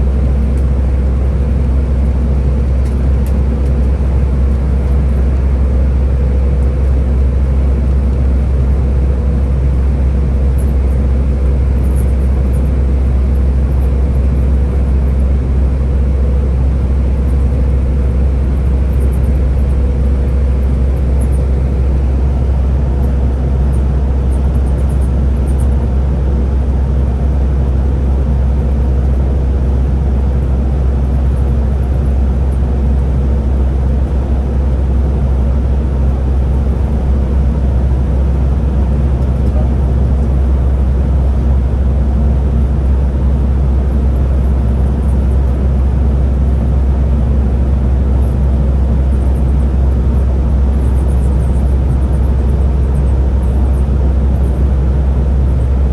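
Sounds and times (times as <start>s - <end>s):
bus engine drone: 0.0s - 55.9s
faint steady whine: 16.7s - 55.9s.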